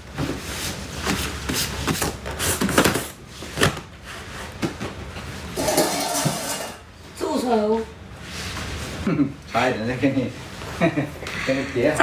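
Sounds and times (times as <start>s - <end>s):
objects knocking and rubbing: 5.5s - 6.9s.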